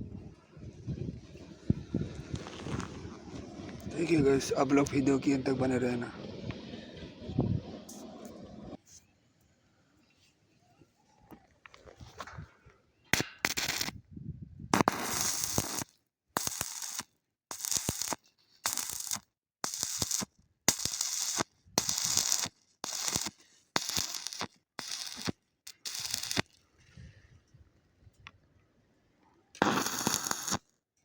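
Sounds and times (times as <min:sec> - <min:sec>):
arc welding crackling sizzles: 0:13.4 - 0:13.9, 0:14.8 - 0:26.6, 0:29.6 - 0:30.6.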